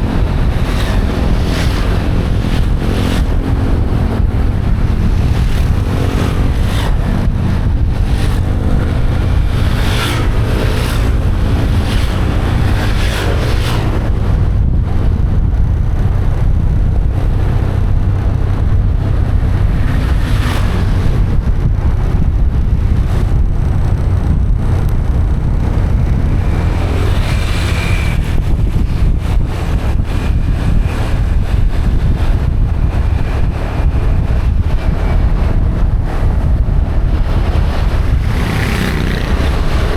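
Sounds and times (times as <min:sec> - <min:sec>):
motorbike engine: 0:00.0 - 0:39.9
vehicles rushing past: 0:00.0 - 0:39.9
wind buffeting microphone: 0:00.0 - 0:39.9.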